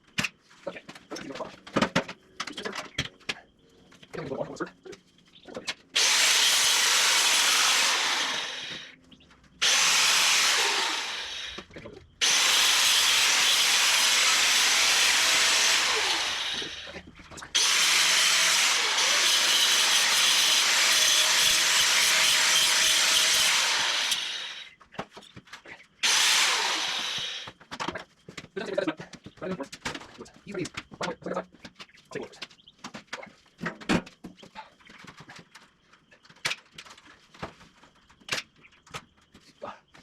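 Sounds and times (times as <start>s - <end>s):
power tool working wood: 6.0s - 9.0s, 9.6s - 24.7s, 26.0s - 27.5s.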